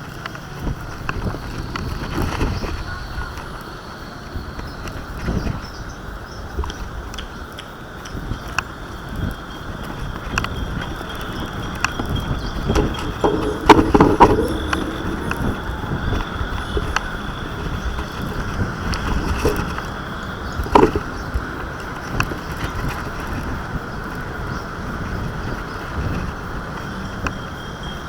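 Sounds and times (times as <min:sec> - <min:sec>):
wind buffeting microphone: 0:07.9 - 0:28.0
knocks and rattles: 0:12.4 - 0:17.3, 0:19.1 - 0:19.9, 0:20.8 - 0:21.1.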